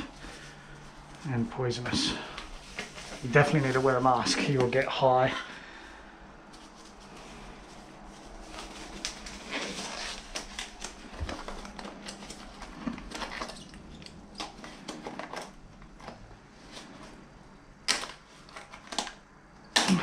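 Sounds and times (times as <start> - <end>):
small items clicking and rustling: 8.6 - 16.3.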